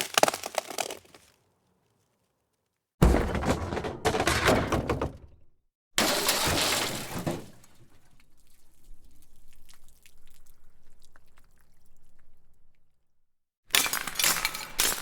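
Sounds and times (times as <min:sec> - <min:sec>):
crashing impact: 0:03.0 - 0:05.4.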